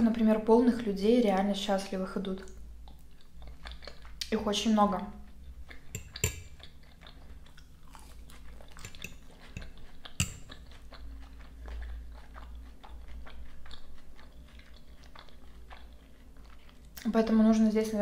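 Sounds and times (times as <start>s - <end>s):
chewing salad: 0.7s - 18.0s
wet mouth clicks: 5.3s - 17.1s
fork striking ceramic plate: 6.0s - 6.6s, 8.8s - 10.6s.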